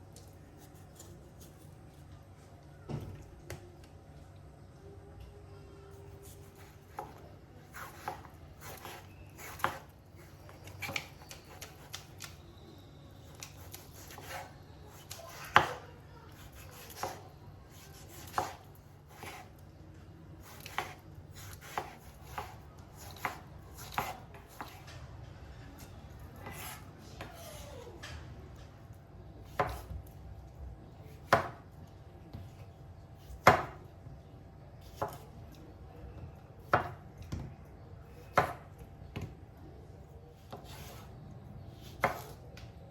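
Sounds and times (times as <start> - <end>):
knife chopping on cutting board: 7.8 - 9.9, 13.4 - 15.8, 16.4 - 19.6, 20.4 - 24.8, 29.5 - 30.0, 31.2 - 31.6, 33.2 - 33.8, 34.9 - 35.2, 36.7 - 37.0, 38.3 - 38.6, 41.8 - 42.4.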